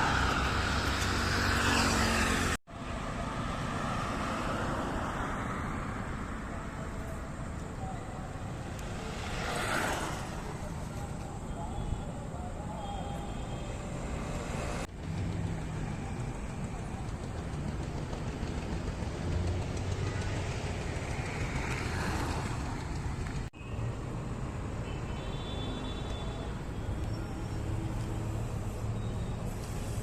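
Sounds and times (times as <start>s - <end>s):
electric scooter passing by: 0.0s - 2.6s
road and traffic noise: 0.0s - 30.0s.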